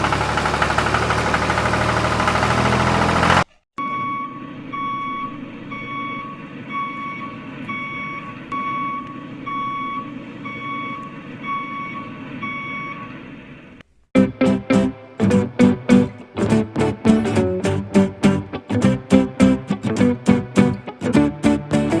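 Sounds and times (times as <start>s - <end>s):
plucked guitar music: 14.2s - 22.0s.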